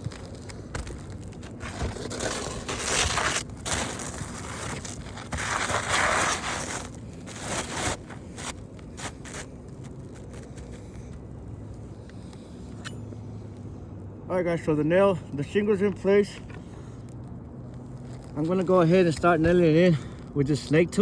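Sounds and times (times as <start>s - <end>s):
roof shingle scraping and crunching: 0.0s - 11.2s, 17.6s - 20.3s.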